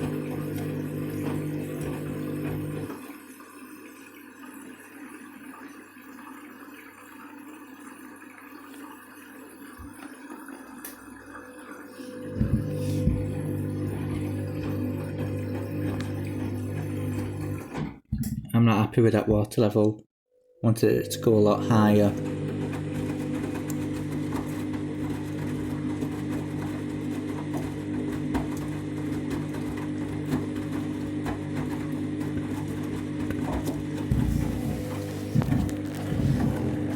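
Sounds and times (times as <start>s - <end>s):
washing machine motor hum: 0.0s - 18.0s, 20.8s - 36.9s
water rushing into drum: 22.1s - 36.9s.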